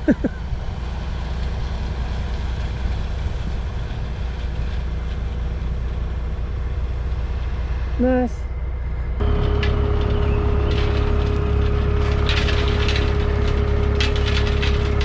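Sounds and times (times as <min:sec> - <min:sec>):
diesel engine running: 0:00.0 - 0:15.0
gravel pouring out: 0:09.2 - 0:15.0.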